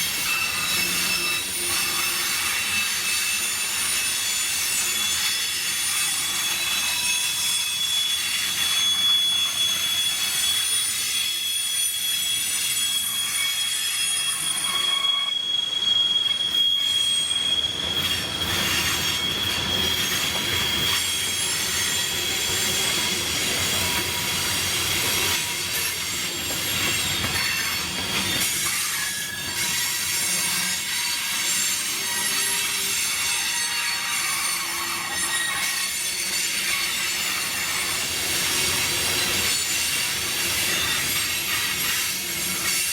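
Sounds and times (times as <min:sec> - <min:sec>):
train wheels squealing: 0:00.0 - 0:42.9
train rumbling: 0:16.4 - 0:30.2.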